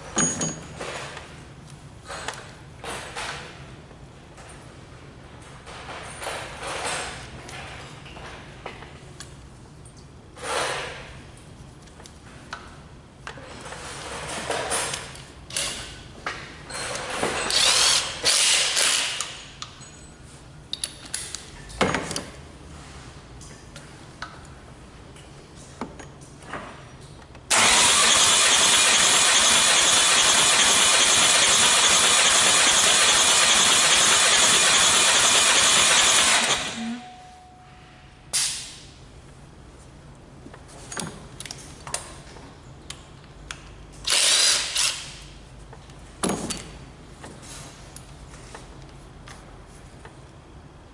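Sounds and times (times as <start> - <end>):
workshop clatter and knocks: 0.0 - 9.2, 10.0 - 11.3, 12.6 - 17.6, 21.2 - 24.4, 25.1 - 27.5, 40.4 - 42.6, 45.6 - 49.5
diesel engine cranking on starter: 27.5 - 36.8.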